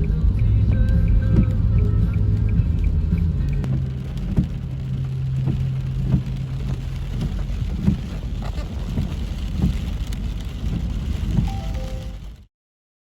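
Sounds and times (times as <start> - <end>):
rain falling: 0.0 - 12.5
low held tone: 11.4 - 12.4.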